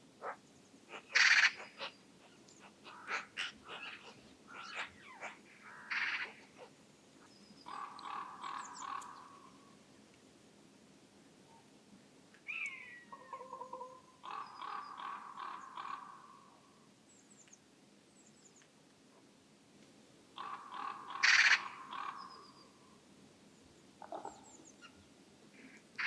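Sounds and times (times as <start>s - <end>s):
wild bird calls: 0.2s - 9.8s, 12.5s - 16.8s, 20.4s - 23.0s, 24.0s - 26.0s.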